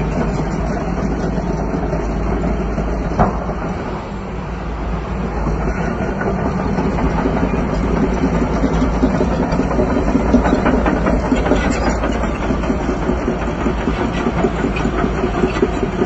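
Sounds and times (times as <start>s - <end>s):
bulldozer diesel engine running: 0.0s - 16.0s
irregular clatter: 5.2s - 16.0s.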